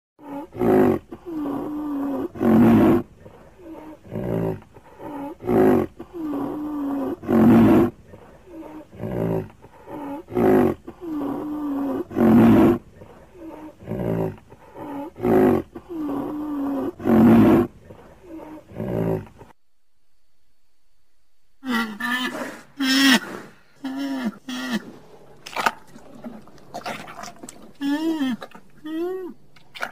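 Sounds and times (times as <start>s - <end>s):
deep animal calls: 21.6s - 25.1s.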